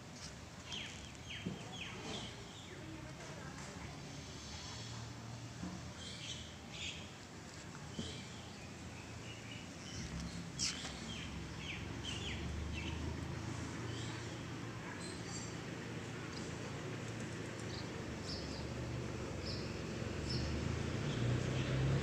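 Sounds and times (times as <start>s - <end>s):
small birds chirping: 0.2s - 3.0s, 5.9s - 7.2s, 7.8s - 22.0s.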